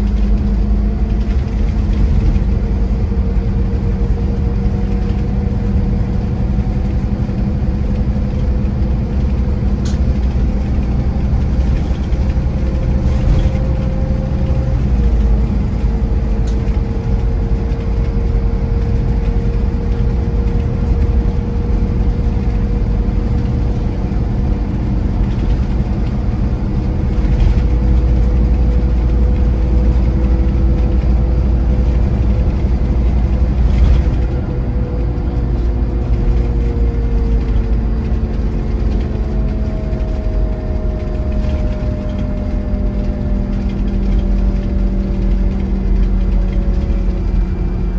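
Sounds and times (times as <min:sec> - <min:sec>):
coach engine drone: 0:00.0 - 0:47.9
road rumble: 0:00.0 - 0:47.9.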